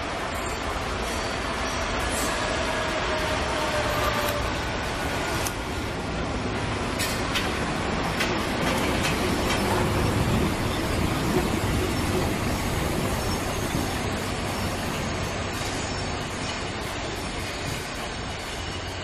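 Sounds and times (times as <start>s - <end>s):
train rolling past: 0.0s - 19.0s
wheels clicking over rail joints: 6.8s - 19.0s.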